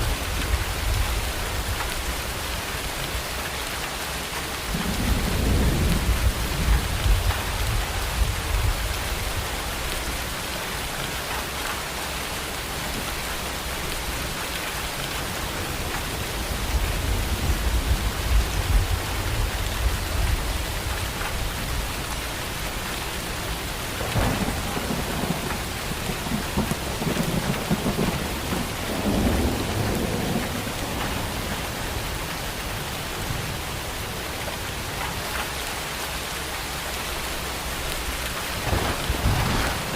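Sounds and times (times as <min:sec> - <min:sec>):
steady rain: 0:00.0 - 0:39.9
thunder rumbling: 0:04.7 - 0:10.3, 0:13.8 - 0:33.7, 0:37.6 - 0:39.9.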